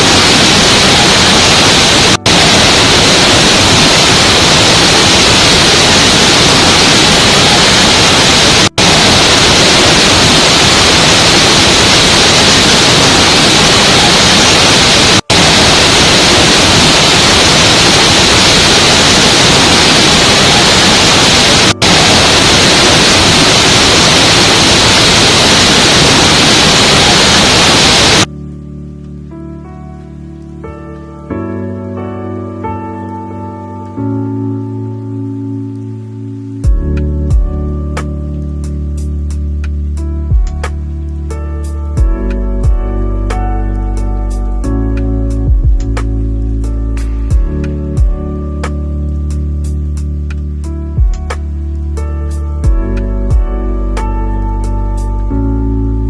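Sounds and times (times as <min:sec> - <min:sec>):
waterfall rushing: 0:00.0 - 0:28.3
soft slow music: 0:28.3 - 0:56.0.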